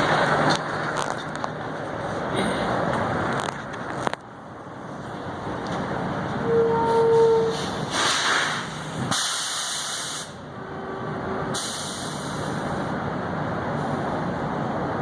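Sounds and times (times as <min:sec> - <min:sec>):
trucks rumbling: 0:00.0 - 0:15.0
air hissing bursts: 0:07.6 - 0:10.4, 0:11.5 - 0:12.8.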